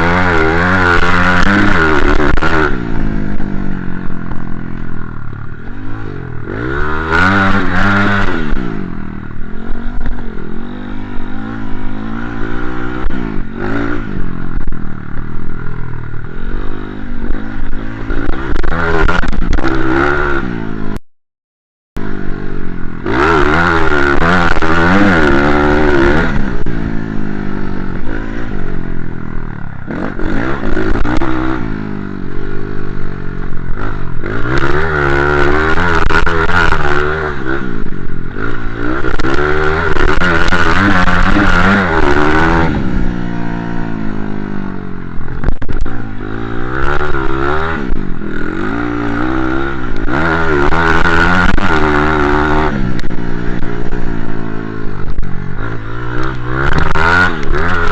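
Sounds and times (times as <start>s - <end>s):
motocross bike engine revving: 0.0s - 21.0s, 22.0s - 57.9s.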